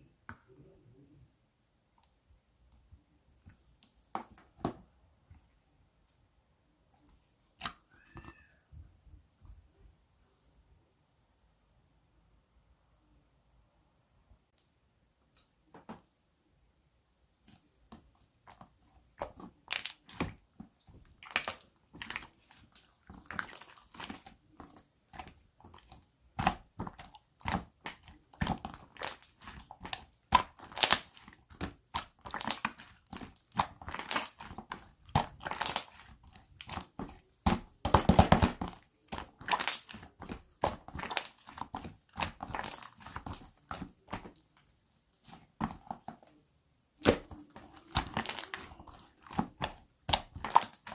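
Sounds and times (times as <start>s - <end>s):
hands squishing slime: 17.4s - 50.9s
sticky crackles and pops: 21.2s - 44.4s.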